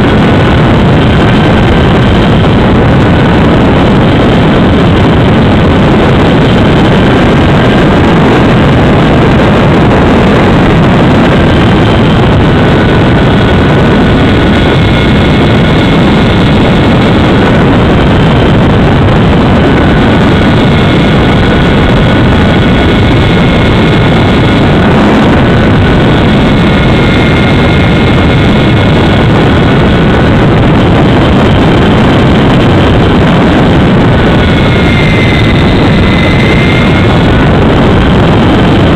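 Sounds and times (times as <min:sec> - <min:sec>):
wind rushing over microphone: 0:00.0 - 0:38.9
model plane motor whining: 0:34.1 - 0:37.5.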